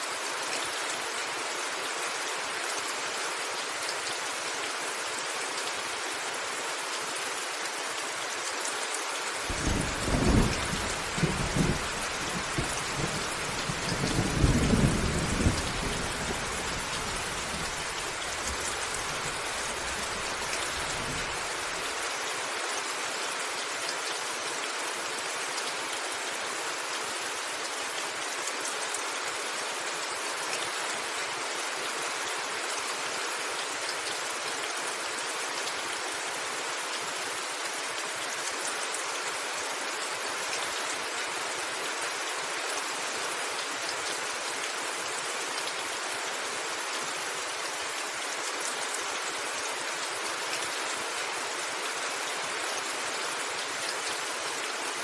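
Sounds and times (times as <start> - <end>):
heavy rain on a rooftop: 0.0 - 55.0
thunder rumbling: 9.5 - 17.6.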